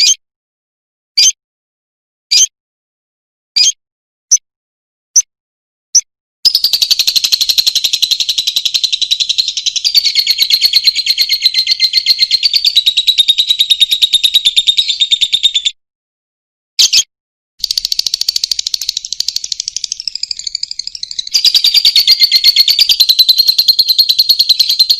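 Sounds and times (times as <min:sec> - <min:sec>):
lovebird fast chattering trill: 0:06.5 - 0:15.7, 0:17.6 - 0:24.9
lovebird short chirps: 0:16.8 - 0:24.9.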